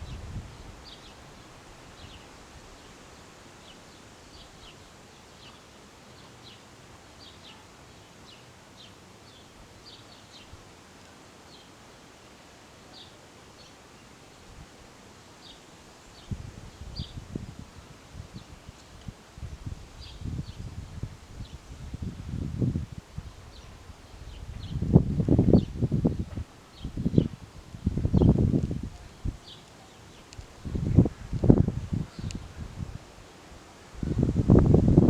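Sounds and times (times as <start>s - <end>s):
wind gusts on microphone: 0.0s - 2.8s, 16.2s - 35.0s
wind rustling hiss: 0.0s - 35.0s
small birds chirping: 28.1s - 32.6s.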